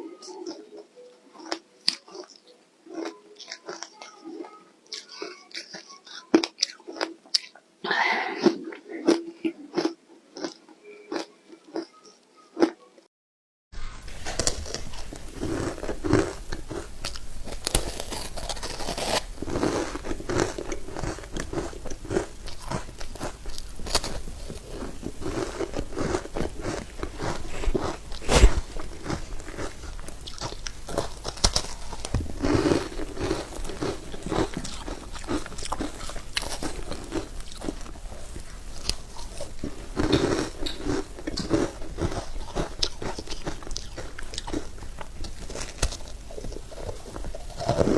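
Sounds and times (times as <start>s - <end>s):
ice crunching while chewed: 0.2s - 7.6s, 8.3s - 11.9s, 14.0s - 47.9s.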